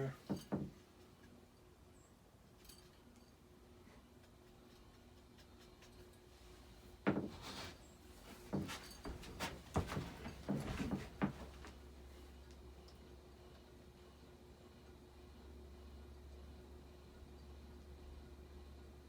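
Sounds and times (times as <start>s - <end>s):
ceiling fan motor hum: 0.0s - 19.0s
knocks and clatter: 0.2s - 0.8s, 7.0s - 7.7s, 8.3s - 11.6s.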